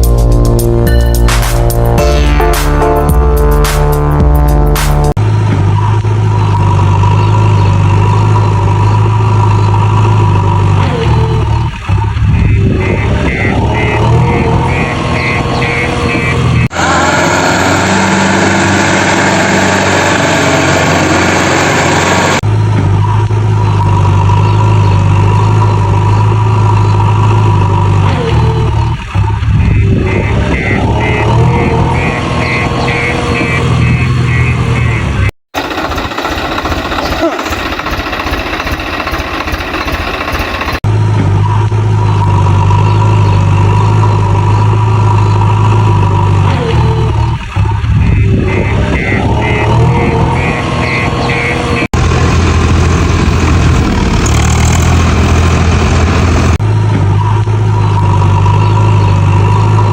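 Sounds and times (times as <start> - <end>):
heavy vehicle engine idling: 5.2 - 59.9.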